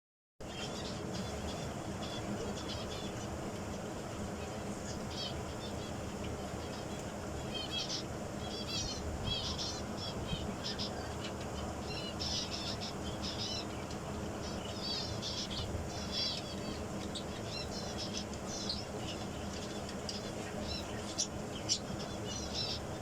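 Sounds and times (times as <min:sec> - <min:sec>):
low background hum: 0:00.4 - 0:23.0
small birds chirping: 0:00.4 - 0:23.0.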